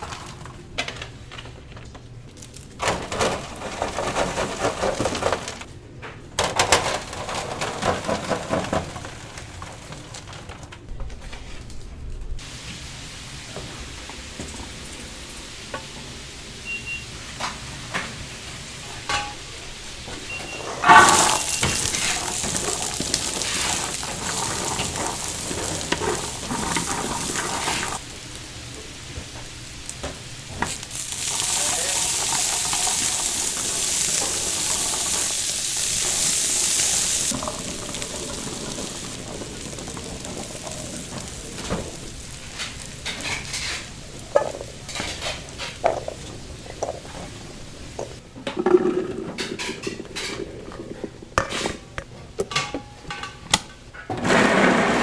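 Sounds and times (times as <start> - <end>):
metal utensils and pans clanking: 2.8 - 5.7, 6.4 - 10.8, 18.8 - 28.0, 30.0 - 55.0
chicken sizzling in hot oil: 12.4 - 48.2.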